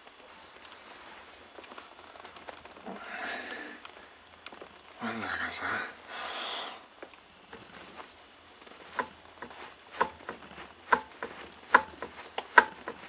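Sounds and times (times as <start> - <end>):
sharp metallic engine knocks: 9.0 - 13.0.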